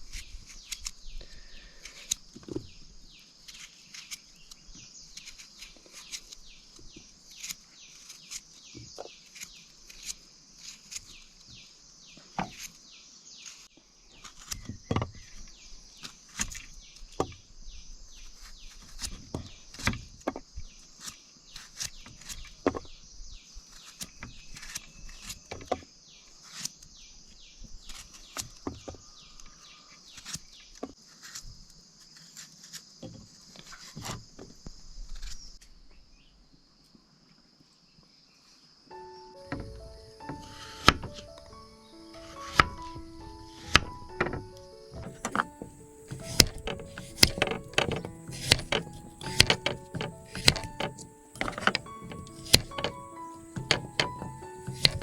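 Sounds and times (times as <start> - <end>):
insects chirping chorus: 0.0 - 55.0
sharp taps and knocks: 45.0 - 55.0.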